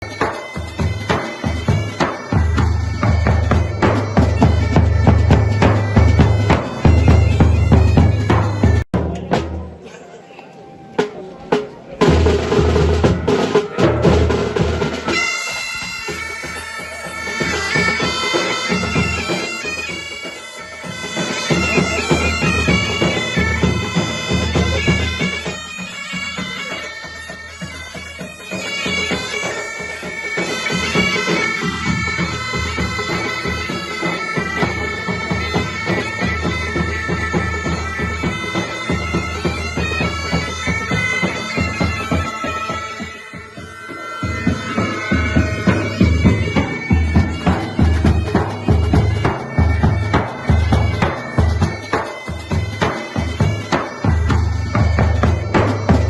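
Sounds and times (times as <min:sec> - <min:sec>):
bagpipes playing melody: 0:00.0 - 0:08.9, 0:12.0 - 0:56.0
drums beating: 0:00.0 - 0:56.0.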